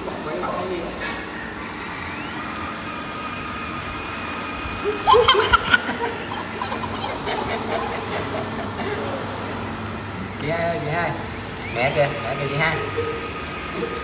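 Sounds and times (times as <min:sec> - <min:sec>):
child squealing: 0:04.9 - 0:08.2.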